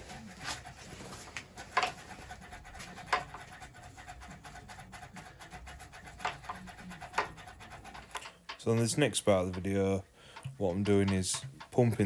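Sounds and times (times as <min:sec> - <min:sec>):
faint scraping and ticking: 0:00.0 - 0:12.0
oil pump clicks: 0:08.0 - 0:09.7, 0:10.3 - 0:12.0.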